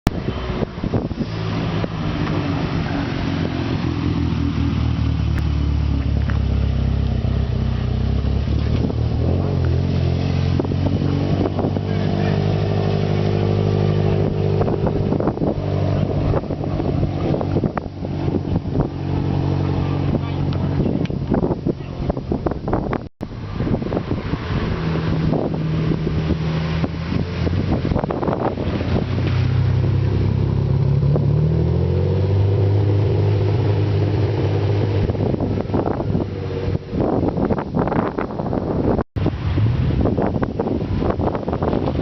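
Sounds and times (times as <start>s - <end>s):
car exhaust drone: 0.1s - 42.0s.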